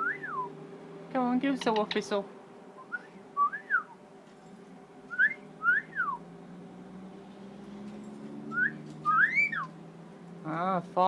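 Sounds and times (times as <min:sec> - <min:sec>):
cockatiel wolf whistle: 0:08.5 - 0:09.7.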